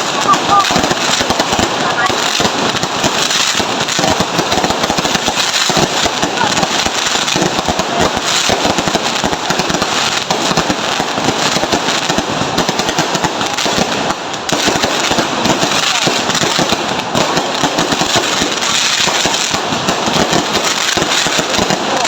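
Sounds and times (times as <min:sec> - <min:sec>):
fireworks crackling: 0:00.0 - 0:22.0.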